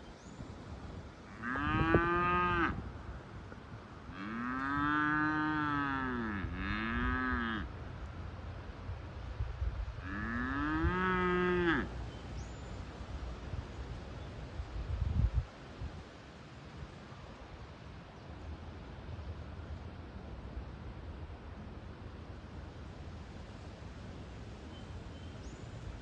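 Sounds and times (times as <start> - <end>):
cow mooing: 1.3 - 2.8, 4.1 - 7.7, 10.0 - 11.9.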